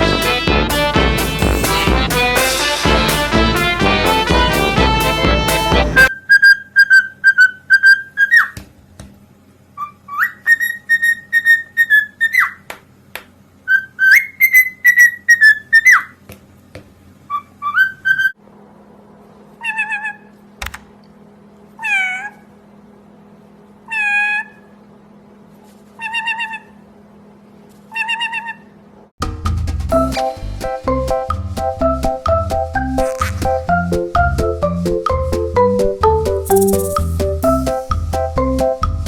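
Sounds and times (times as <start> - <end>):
parrot whistling a tune: 6.1 - 8.5, 13.7 - 16.0
falling parrot calls: 33.0 - 33.6.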